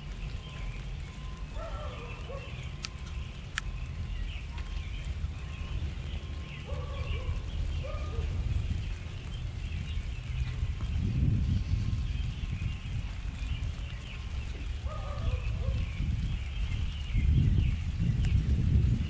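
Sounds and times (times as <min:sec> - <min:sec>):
lower pitched bird calls: 0:00.0 - 0:18.5
birds chirping: 0:00.0 - 0:19.0
steady low rumble: 0:00.0 - 0:19.0
sharp ticks: 0:02.7 - 0:04.0.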